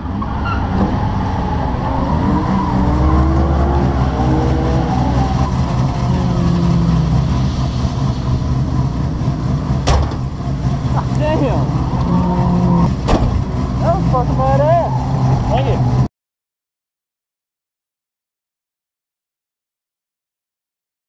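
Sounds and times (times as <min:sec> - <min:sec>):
car engine idling: 0:01.0 - 0:16.1.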